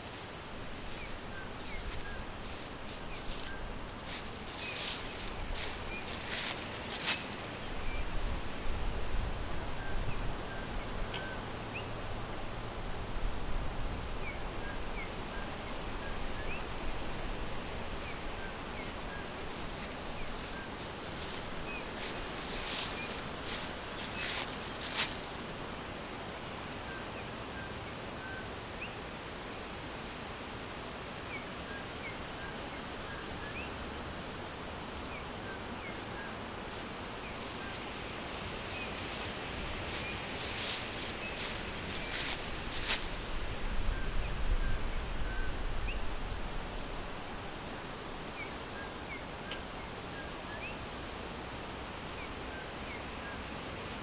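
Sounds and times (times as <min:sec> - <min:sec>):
rustling: 0:00.0 - 0:07.9, 0:16.3 - 0:25.8, 0:33.3 - 0:43.6
leaves or wind hissing: 0:00.0 - 0:10.4, 0:12.0 - 0:26.8, 0:28.5 - 0:54.0.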